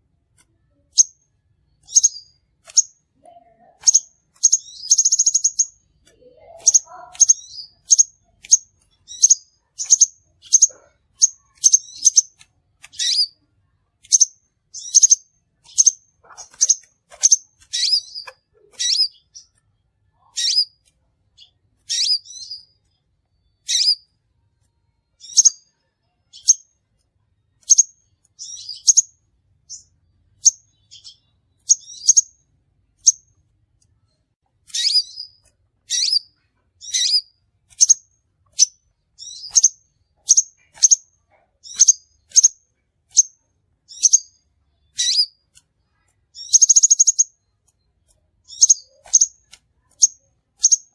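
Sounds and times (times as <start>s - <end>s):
bird giving sharp high chirps: 1.8s - 3.0s, 3.7s - 13.4s, 14.0s - 19.5s, 20.2s - 20.8s, 21.8s - 22.7s, 23.6s - 24.0s, 30.4s - 32.3s, 34.7s - 41.0s, 41.6s - 45.4s, 46.4s - 47.4s.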